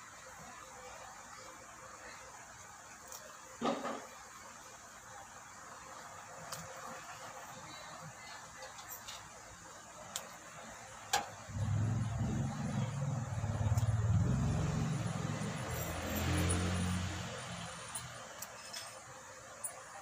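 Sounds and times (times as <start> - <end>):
vehicle engine passing by: 11.5 - 18.3.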